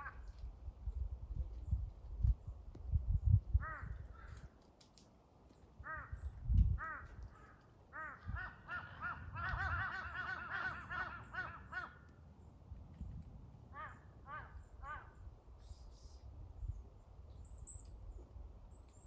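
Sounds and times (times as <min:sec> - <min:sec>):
crows cawing: 0:03.6 - 0:04.5, 0:05.8 - 0:12.2, 0:13.7 - 0:15.3.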